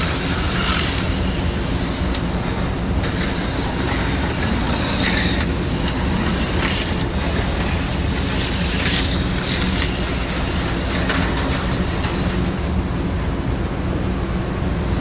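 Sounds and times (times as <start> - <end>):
slot car motors whirring: 0.0 - 12.6
steady hum: 0.0 - 15.0.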